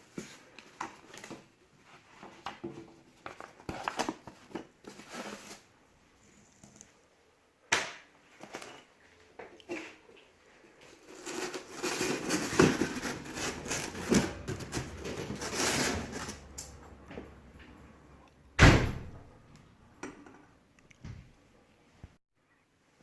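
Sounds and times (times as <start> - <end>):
cardboard scraping and rustling: 3.2 - 5.7, 11.0 - 16.6.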